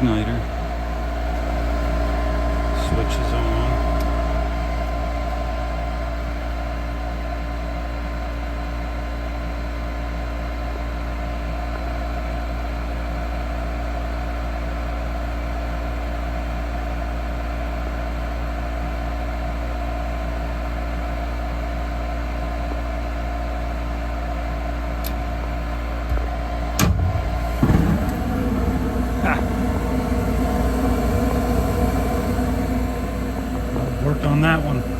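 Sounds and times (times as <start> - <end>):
gas furnace humming: 0.0 - 7.6, 24.5 - 34.9.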